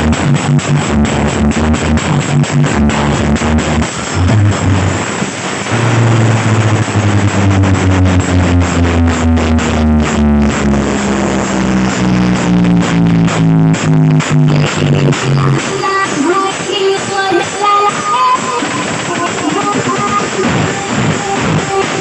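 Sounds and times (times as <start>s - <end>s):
loud electronic music with bass: 0.0s - 22.0s.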